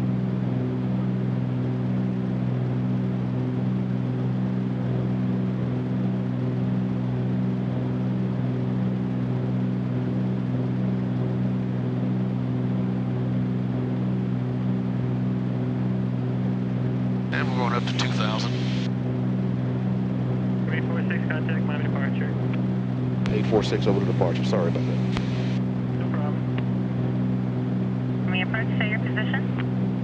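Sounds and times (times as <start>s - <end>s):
aircraft cabin engine drone: 0.0s - 30.0s.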